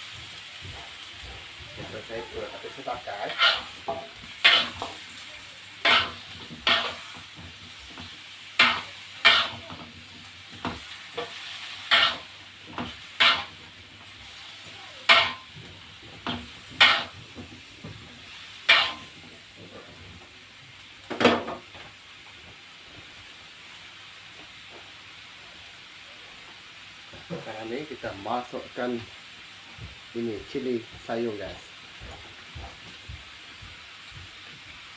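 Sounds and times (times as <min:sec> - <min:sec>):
oil sizzling: 0:00.0 - 0:34.9
spatula scraping frying pan: 0:02.4 - 0:05.2, 0:05.8 - 0:17.4, 0:18.3 - 0:19.2.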